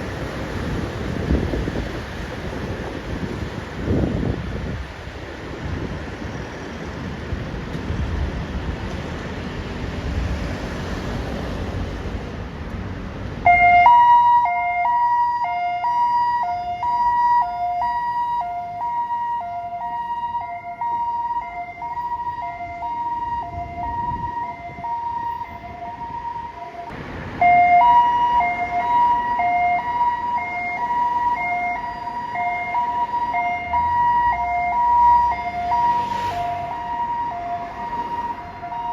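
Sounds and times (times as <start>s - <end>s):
traffic noise: 0.0s - 38.9s
wind: 0.0s - 38.9s
ambulance two-tone siren: 13.4s - 38.9s.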